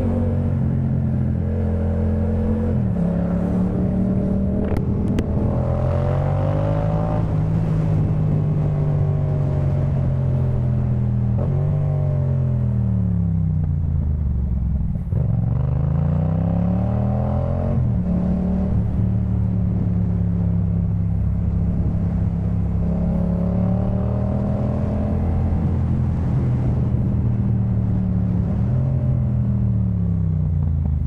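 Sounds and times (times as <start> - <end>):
motorcycle engine revving: 0.0 - 13.5.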